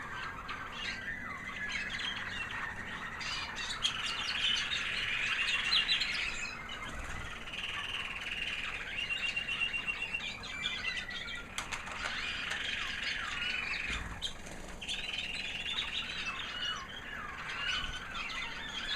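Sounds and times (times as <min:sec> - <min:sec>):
canary singing twitters and trills: 0:00.0 - 0:18.9.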